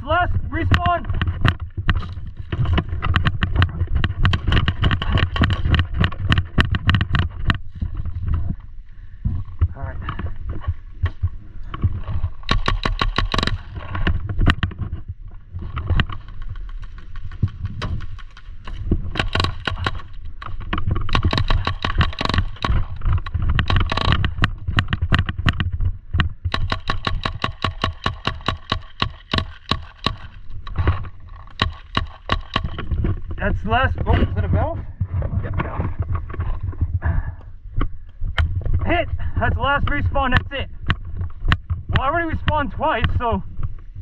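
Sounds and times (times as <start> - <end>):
wind on camera: 0.0 - 44.0
paintball markers firing: 12.4 - 14.1, 16.0 - 25.5, 26.4 - 32.9.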